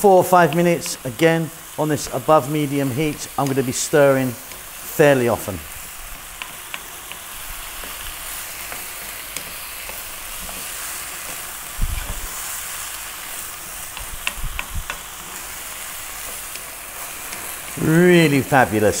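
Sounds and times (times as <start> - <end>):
meat and vegetables sizzling in a pan: 0.0 - 19.0
wooden spoon scraping a pan: 5.7 - 17.8.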